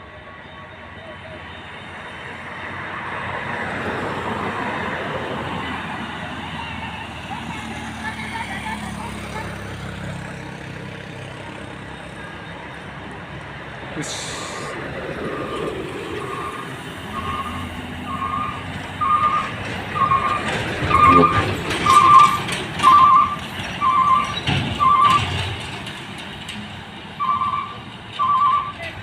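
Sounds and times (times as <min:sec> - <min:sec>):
truck reversing alarm beeping: 0:00.0 - 0:26.5, 0:27.1 - 0:29.0
diesel truck engine revving: 0:03.3 - 0:29.0.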